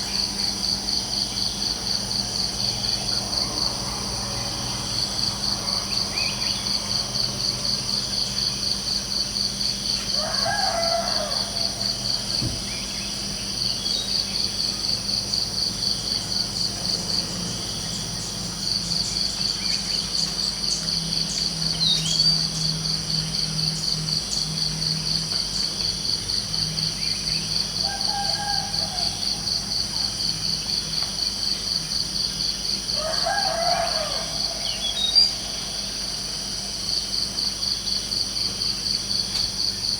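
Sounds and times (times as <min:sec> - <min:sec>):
crickets chirping: 0:00.0 - 0:39.9
rooster crowing: 0:10.0 - 0:12.3, 0:27.8 - 0:30.4, 0:32.8 - 0:36.9.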